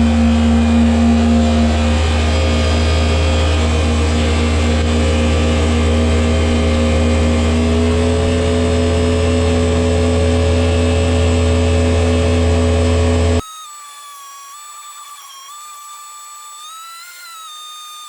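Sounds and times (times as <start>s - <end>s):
boat engine humming: 0.0s - 13.4s.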